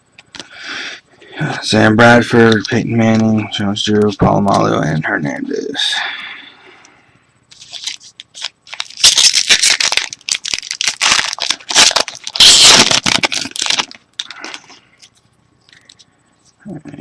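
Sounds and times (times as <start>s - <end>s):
foil wrapper tearing and crinkling: 7.6s - 14.7s.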